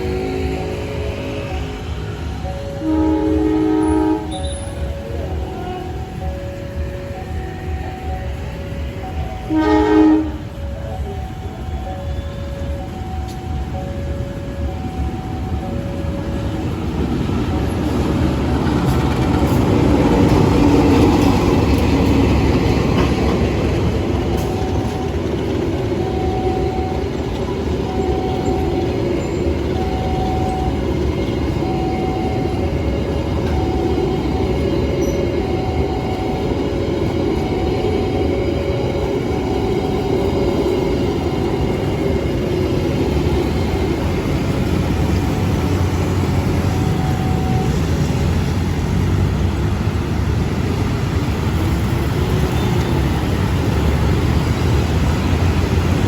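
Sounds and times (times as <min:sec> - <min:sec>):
train rumbling past: 0:00.0 - 0:56.0.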